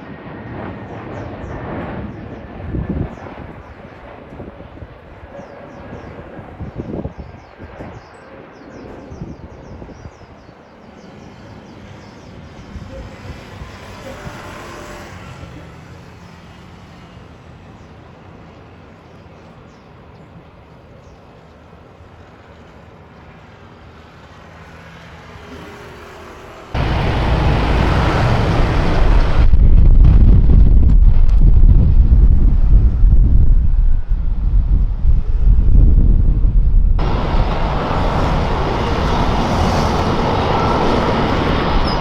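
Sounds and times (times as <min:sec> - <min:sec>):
airliner engine rushing: 0:00.0 - 0:42.0
loud rushing with low rumble: 0:26.8 - 0:42.0.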